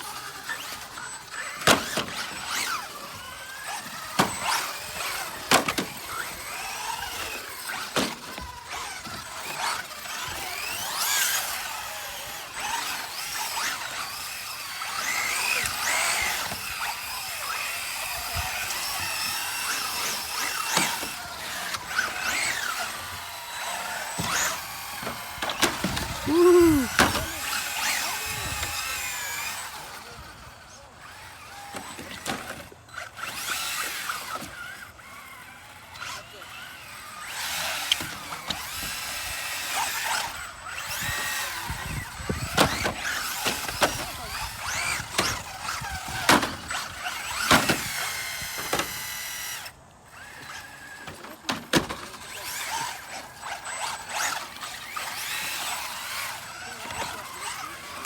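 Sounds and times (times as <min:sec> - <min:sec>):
electric toy car motors whining: 0:00.0 - 0:58.0
toy cars knocking on landing: 0:24.2 - 0:29.0, 0:42.3 - 0:49.2.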